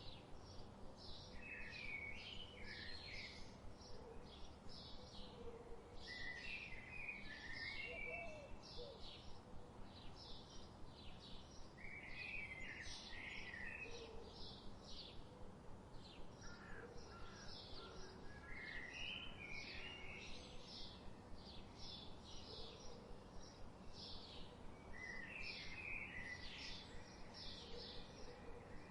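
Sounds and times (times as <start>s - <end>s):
faint background hiss: 0.0s - 28.9s.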